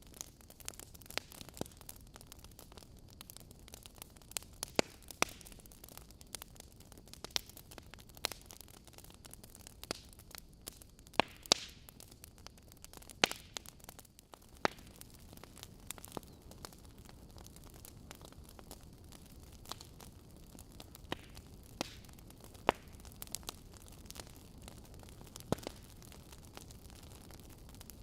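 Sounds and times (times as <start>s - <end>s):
logs popping and snapping: 4.6s - 5.7s, 11.1s - 11.8s, 13.0s - 13.6s, 21.0s - 23.0s, 25.2s - 26.0s.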